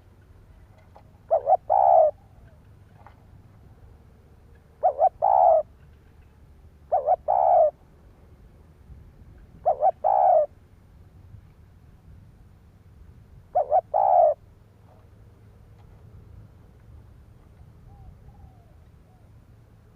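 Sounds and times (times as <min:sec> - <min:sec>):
dove cooing: 0:01.0 - 0:02.6, 0:04.8 - 0:05.7, 0:06.8 - 0:07.8, 0:09.6 - 0:10.6, 0:13.5 - 0:14.4, 0:17.8 - 0:19.3.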